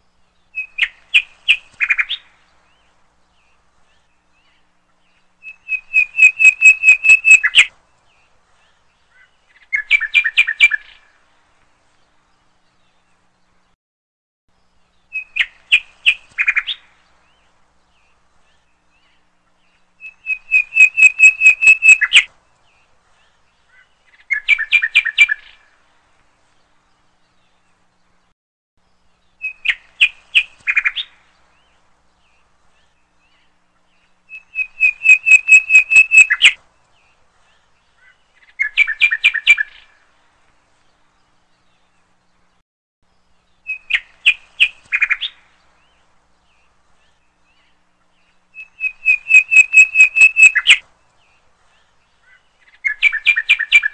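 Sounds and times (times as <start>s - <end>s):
bird chirping trilled notes: 20.1s - 22.2s, 48.6s - 50.7s.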